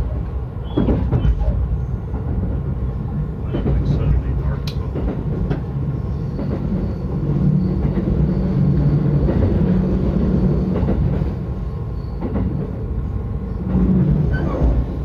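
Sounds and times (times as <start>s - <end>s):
train motors and wheels droning: 0.0s - 15.0s
faint clicks: 4.6s - 4.9s.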